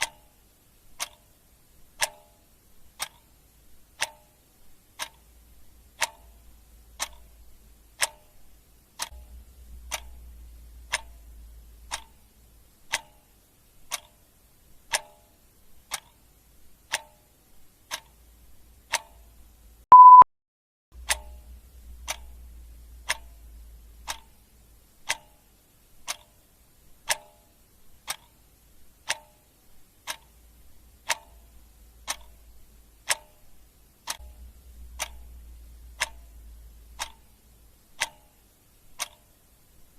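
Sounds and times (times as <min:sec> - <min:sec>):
clock ticking: 0:00.0 - 0:20.2, 0:21.0 - 0:39.9
short electronic beep: 0:19.9 - 0:20.3.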